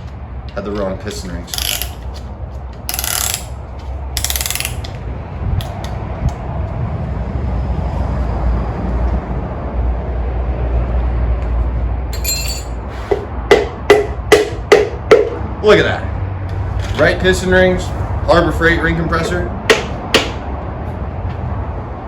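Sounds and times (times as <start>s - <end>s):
metal clicks and ratcheting rattle: 1.6s - 2.1s, 2.9s - 3.6s, 4.2s - 5.0s.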